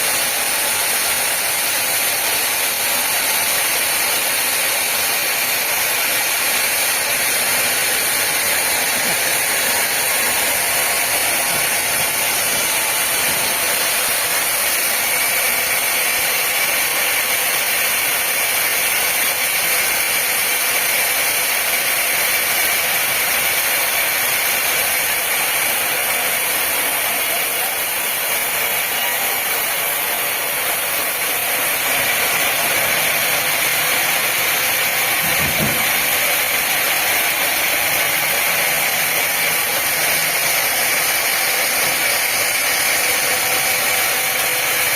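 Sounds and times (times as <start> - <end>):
woodworking machine hiss and whine: 0.0 - 44.9.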